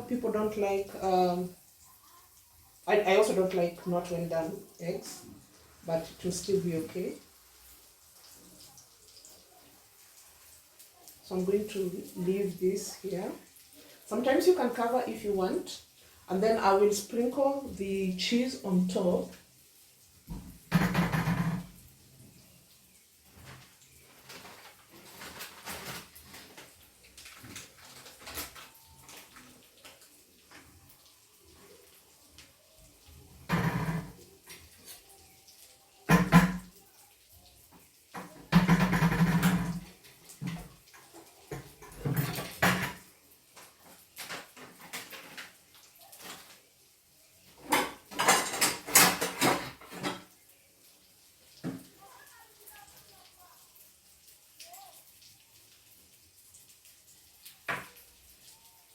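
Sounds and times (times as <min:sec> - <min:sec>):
omelette sizzling in a pan: 0:00.0 - 0:58.9
cookware clattering: 0:20.7 - 0:21.7, 0:33.5 - 0:34.7, 0:36.1 - 0:36.7, 0:38.2 - 0:39.8, 0:47.6 - 0:50.3.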